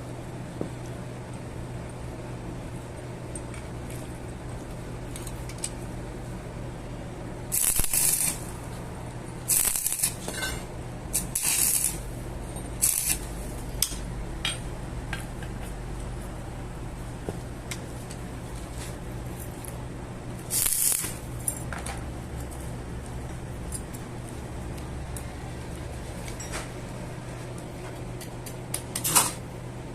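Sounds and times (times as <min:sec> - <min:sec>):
low machine hum: 0:00.0 - 0:29.9
hissing bursts: 0:07.5 - 0:08.5, 0:09.5 - 0:10.2, 0:11.2 - 0:12.0, 0:12.8 - 0:13.3, 0:20.5 - 0:21.2.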